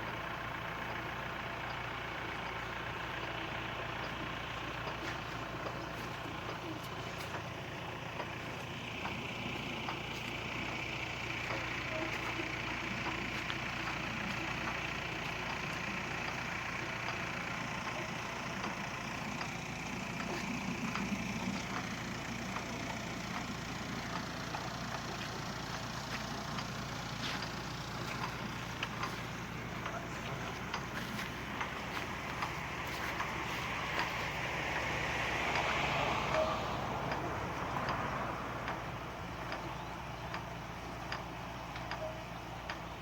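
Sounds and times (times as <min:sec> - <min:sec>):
irrigation machinery humming: 0:00.0 - 0:43.0
light ticks: 0:38.6 - 0:43.0.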